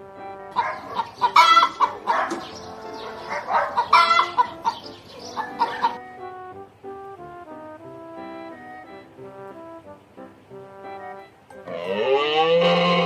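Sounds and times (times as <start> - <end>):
background music: 0.0 - 13.0
chickens clucking: 0.4 - 6.4.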